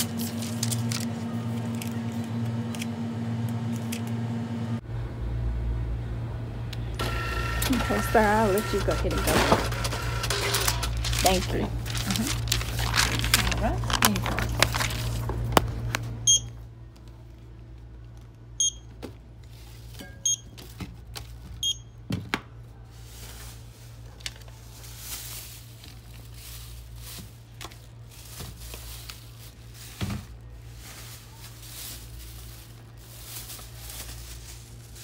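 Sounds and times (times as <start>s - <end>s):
barcode scanner beeping: 7.0s - 11.4s, 16.2s - 16.6s, 18.6s - 18.9s, 20.2s - 20.5s, 21.6s - 21.9s
plastic bag rustling: 7.8s - 16.2s, 22.7s - 35.0s.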